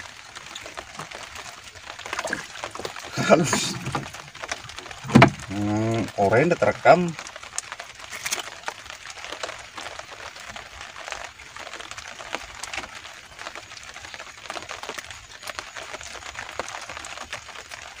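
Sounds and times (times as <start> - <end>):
rain pattering on tarpaulin: 0.0 - 18.0.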